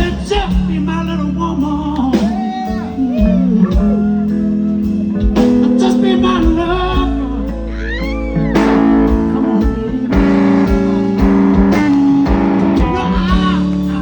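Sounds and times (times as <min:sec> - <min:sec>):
blues band playing: 0:00.0 - 0:14.0
electric guitar lead: 0:00.0 - 0:14.0.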